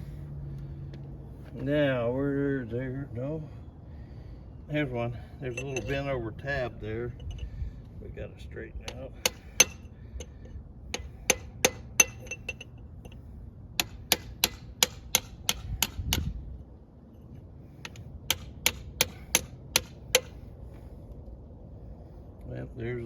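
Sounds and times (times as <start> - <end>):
hammer striking steel: 8.9 - 10.3, 10.9 - 12.7, 13.8 - 16.3, 17.8 - 20.4.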